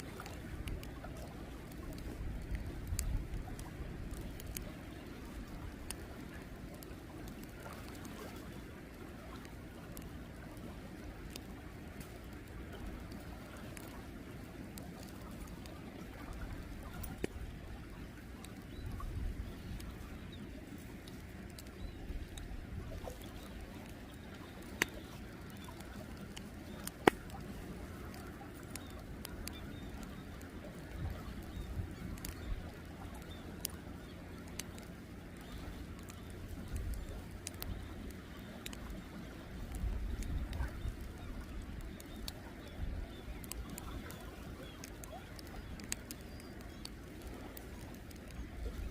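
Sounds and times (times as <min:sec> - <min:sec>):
low outdoor rumble: 0:00.0 - 0:48.9
faint bird calls: 0:14.9 - 0:48.9
sharp clicks: 0:18.4 - 0:48.9.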